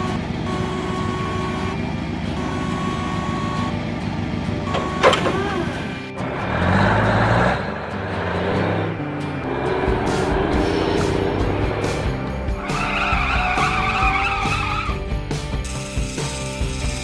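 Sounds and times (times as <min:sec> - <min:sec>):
cartoon engine rumble: 0:04.7 - 0:07.7
stepping low music notes: 0:07.2 - 0:12.7.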